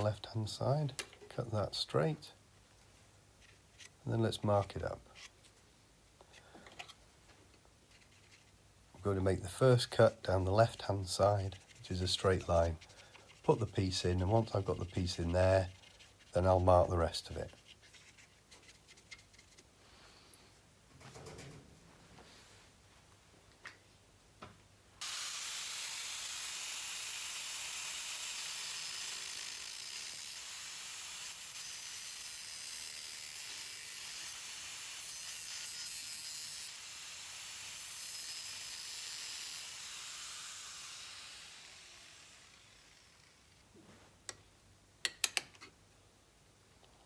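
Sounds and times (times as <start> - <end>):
power tool cutting sheet steel: 25.0 - 43.6.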